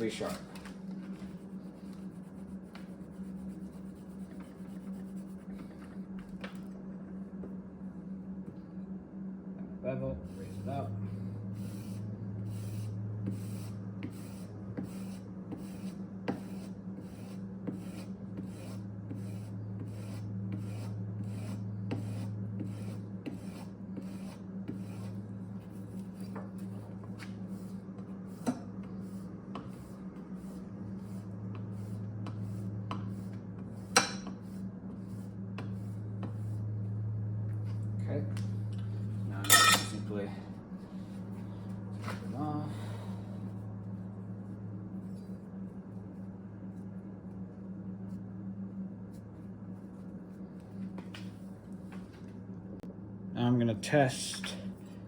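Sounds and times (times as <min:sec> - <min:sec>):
blade rubbing on a strop: 0:11.6 - 0:36.6.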